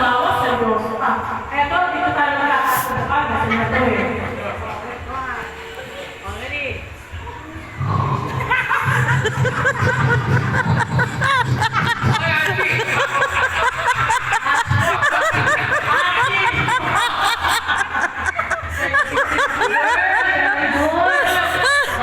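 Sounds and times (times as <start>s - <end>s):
people snickering and chuckling: 7.7s - 22.0s.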